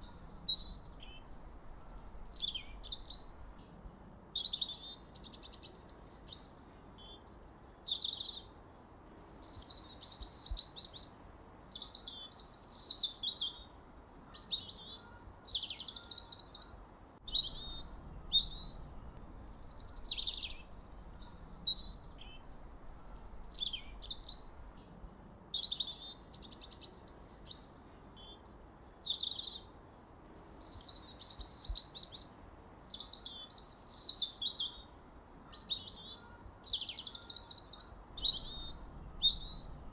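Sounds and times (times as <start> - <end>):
faint steady hiss: 0.0 - 39.9
songbirds chirping and trilling: 0.0 - 39.9.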